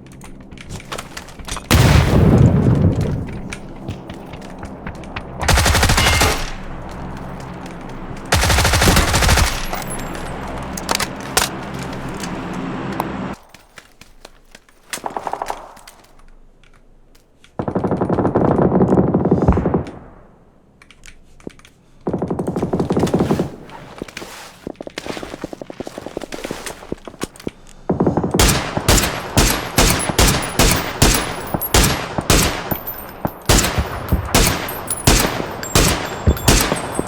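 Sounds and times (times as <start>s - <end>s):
quiet video game sounds: 0.0s - 37.0s
automatic gunfire bursts: 5.4s - 6.6s, 8.3s - 9.8s, 28.4s - 37.0s.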